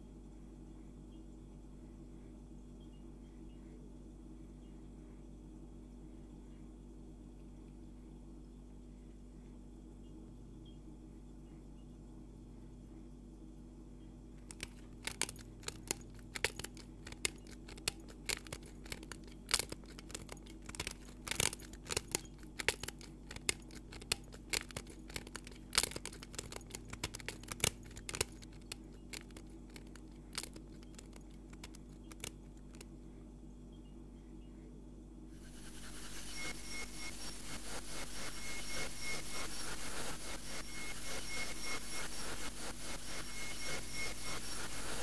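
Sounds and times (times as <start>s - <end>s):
steady low hum: 0.0s - 45.0s
sharp crackles and clicks: 14.4s - 32.9s, 35.4s - 45.0s.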